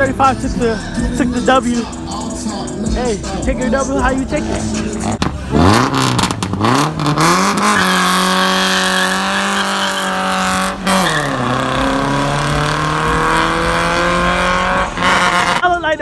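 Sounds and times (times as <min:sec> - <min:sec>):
car engine revving: 0:00.0 - 0:15.7
tyres squealing: 0:04.2 - 0:15.6.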